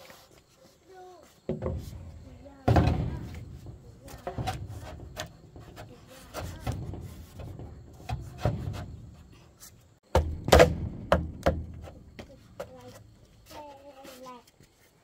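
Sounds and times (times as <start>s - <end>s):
wood scraping: 0.0s - 15.0s
wood knocking: 1.5s - 9.4s, 10.0s - 13.1s.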